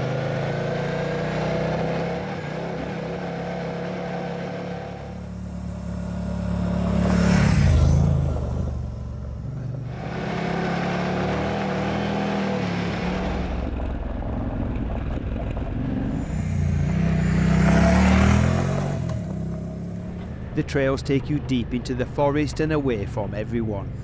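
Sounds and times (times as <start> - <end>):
motorcycle engine running: 4.6 - 20.9.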